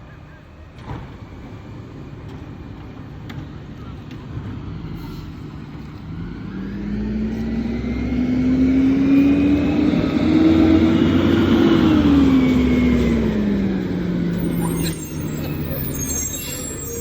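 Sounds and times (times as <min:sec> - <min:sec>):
garbage truck engine revving: 0:06.1 - 0:17.0.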